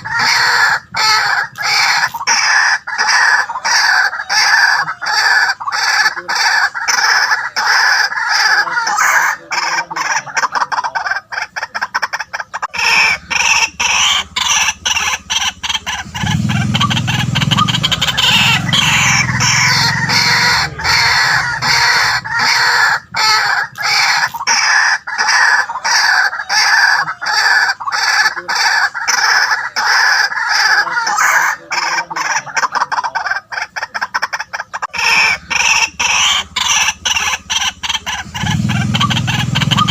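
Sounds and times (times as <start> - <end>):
waterhen croaking calls: 0.0 - 39.9.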